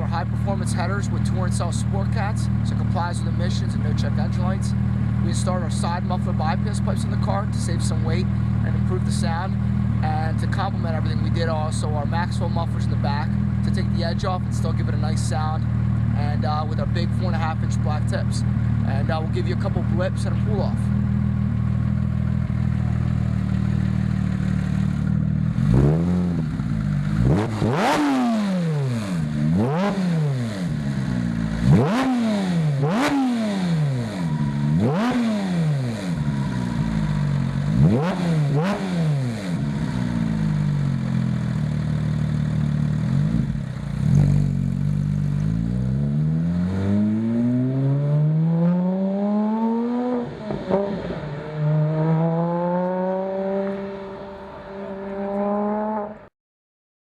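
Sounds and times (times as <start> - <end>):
sports car engine revving: 0.0 - 56.3
car accelerating away: 22.4 - 41.5, 42.9 - 56.2.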